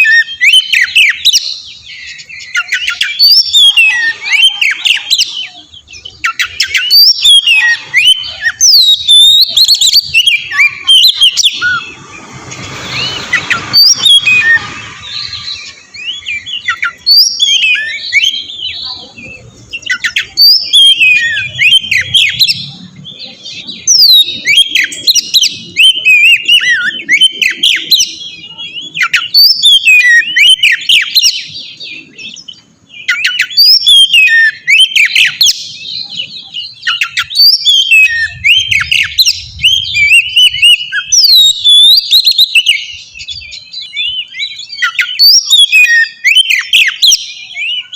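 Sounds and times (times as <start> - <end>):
bird singing whistled phrases: 0.0 - 12.0, 12.9 - 47.9
short rush of noise: 11.6 - 15.7.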